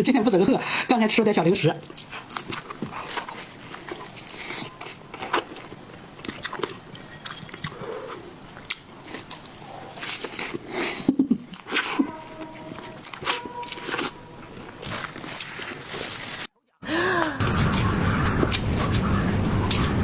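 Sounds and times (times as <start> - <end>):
person biting and chewing food: 1.8 - 16.5.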